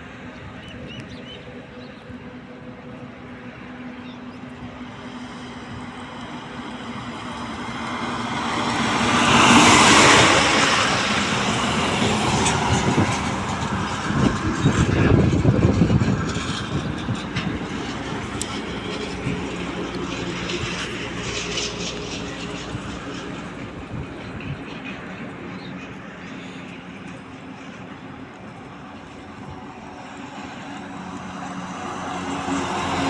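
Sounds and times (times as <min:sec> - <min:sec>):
road vehicle passing: 0:00.0 - 0:33.0.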